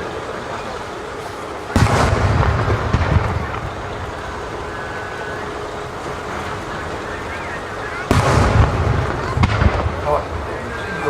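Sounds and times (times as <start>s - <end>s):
background rumble: 0.0s - 11.0s
firework boom: 1.7s - 6.3s, 8.0s - 10.8s.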